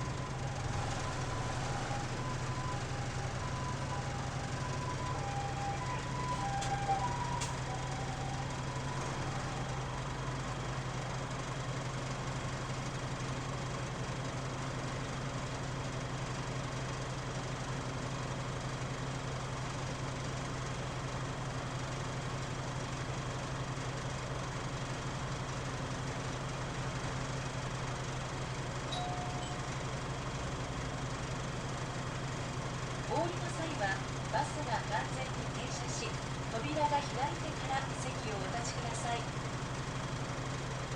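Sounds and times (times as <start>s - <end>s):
bus diesel engine idling: 0.0s - 40.9s
faint beep: 28.9s - 29.9s.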